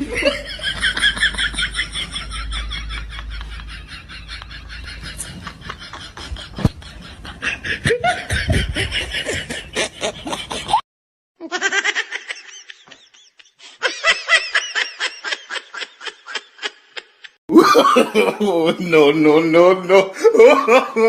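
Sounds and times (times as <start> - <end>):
rapid rhythmic laughing: 0.0 - 10.8.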